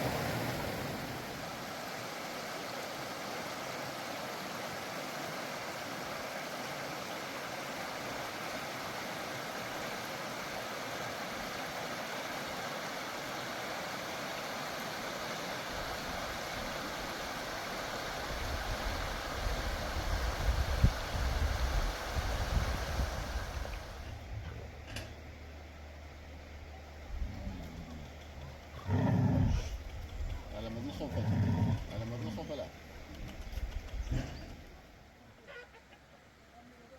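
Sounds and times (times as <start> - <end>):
running water rushing: 0.0 - 35.2
low uneven rumble: 18.1 - 36.9.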